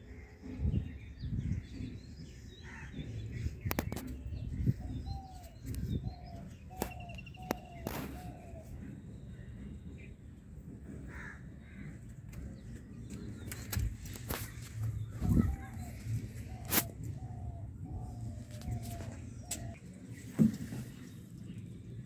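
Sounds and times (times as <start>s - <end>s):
bird calling: 2.1s - 9.5s.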